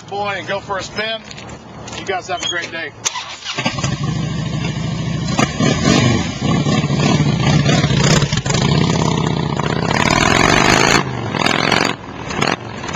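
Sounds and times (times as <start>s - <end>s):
motorcycle accelerating away: 3.1s - 12.9s
motorcycle engine revving: 3.1s - 12.9s.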